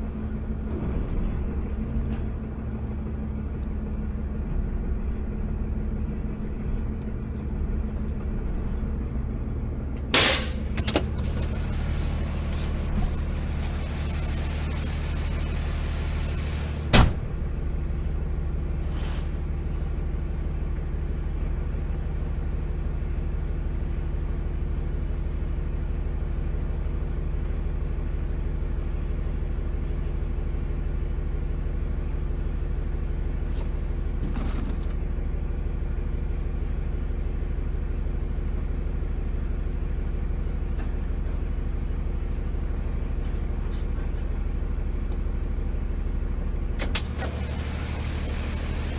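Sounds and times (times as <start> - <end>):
truck engine running: 0.0 - 48.9
sharp bang: 10.2 - 10.8
short hiss: 10.2 - 10.8.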